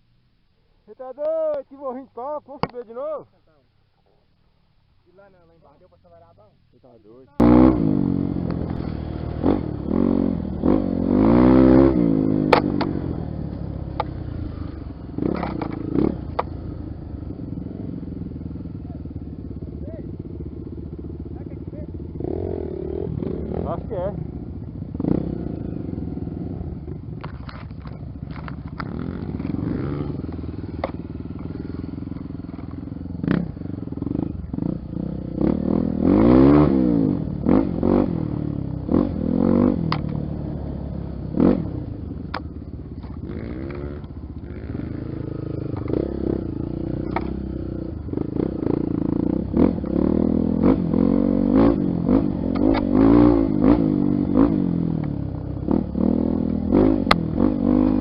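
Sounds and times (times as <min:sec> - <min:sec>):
motorcycle engine revving: 0:07.2 - 0:58.0.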